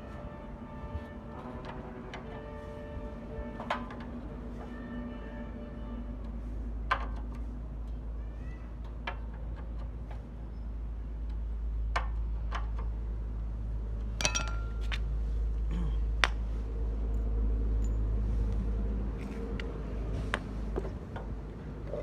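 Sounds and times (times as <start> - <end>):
metallic clinks and taps: 14.2 - 15.0.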